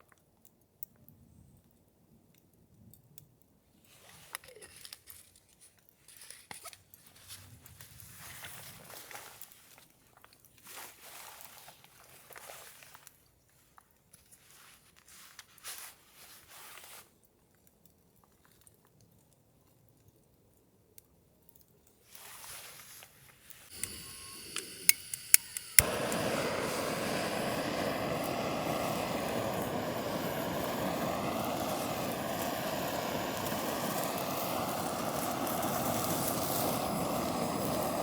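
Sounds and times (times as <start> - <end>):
rustling and crinkling: 3.9 - 17.2.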